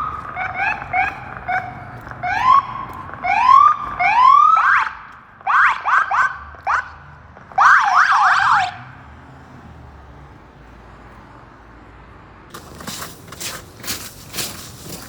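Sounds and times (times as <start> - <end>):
electronic siren warbling: 0.0 - 4.9, 7.6 - 8.8
rough crunching noises: 0.0 - 5.5, 12.5 - 15.0.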